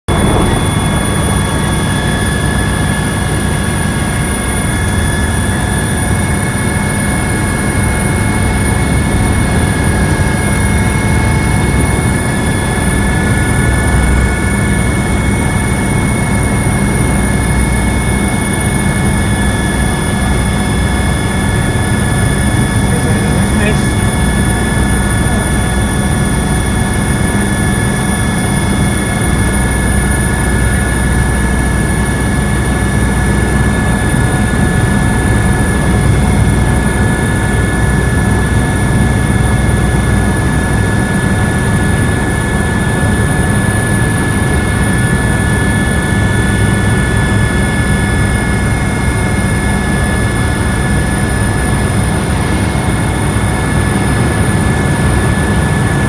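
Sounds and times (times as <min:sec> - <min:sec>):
helicopter engine and rotor drone: 0:00.0 - 0:56.0
high whining tones: 0:00.1 - 0:05.0.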